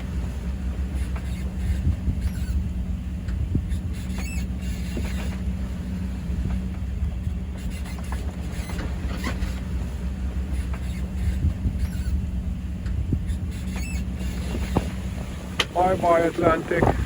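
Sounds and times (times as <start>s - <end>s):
boat creaks and clicks: 0.0s - 17.0s
low rumble with hum: 0.0s - 17.0s.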